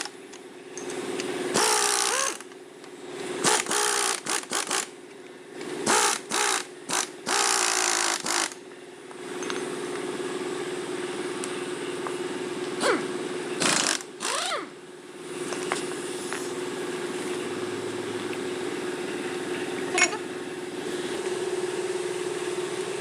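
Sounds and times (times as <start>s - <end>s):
steady mechanical hum: 0.0s - 23.0s
power tool spinning up: 1.5s - 2.5s, 3.4s - 4.9s, 5.8s - 8.6s, 13.6s - 14.6s.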